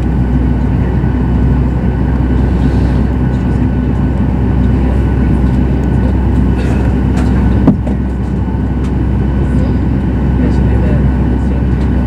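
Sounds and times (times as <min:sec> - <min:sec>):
aircraft cabin engine rumble: 0:00.0 - 0:12.0.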